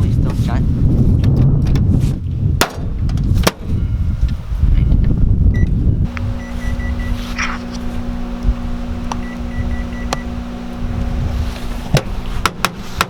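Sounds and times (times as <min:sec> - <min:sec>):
faint pulsed high tone: 0:03.7 - 0:07.7, 0:09.2 - 0:10.4
microwave oven humming: 0:05.5 - 0:12.3.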